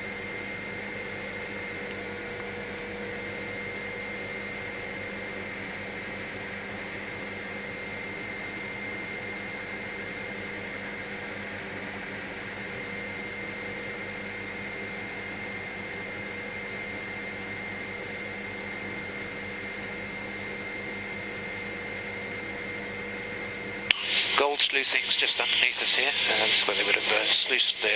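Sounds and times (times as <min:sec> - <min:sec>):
helicopter cabin drone: 0:00.0 - 0:27.9
drivetrain whine: 0:23.9 - 0:27.9.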